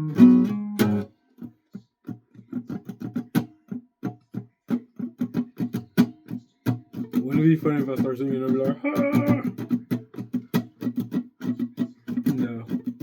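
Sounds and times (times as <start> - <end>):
guitar chord: 0.0 - 1.1
guitar picked in choppy notes: 0.0 - 1.1, 7.0 - 13.0.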